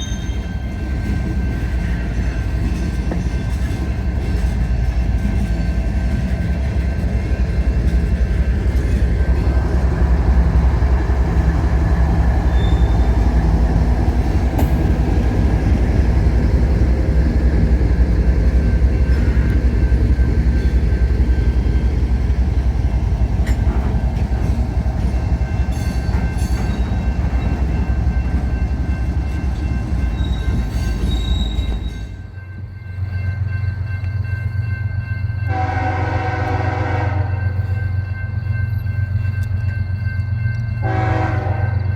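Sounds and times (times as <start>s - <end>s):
train wheels rumbling on rails: 0.0s - 41.9s
faint thin wheel squeals: 12.4s - 13.4s, 30.2s - 32.2s.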